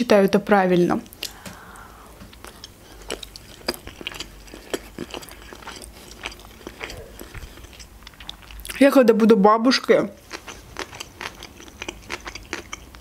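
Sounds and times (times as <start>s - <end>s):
person chewing with mouth clicks: 1.1s - 8.8s, 10.2s - 13.0s.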